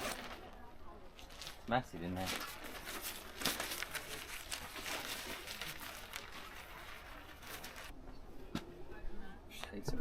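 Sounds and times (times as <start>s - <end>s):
tent fabric rustling: 0.0s - 7.9s.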